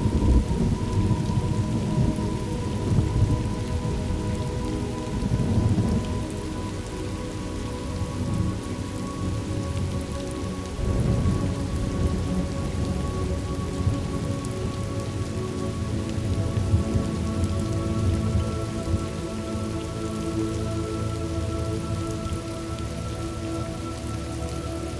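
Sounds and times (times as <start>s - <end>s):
thunder rumbling: 0.0s - 4.4s, 10.8s - 14.3s
steady rain: 0.0s - 24.9s.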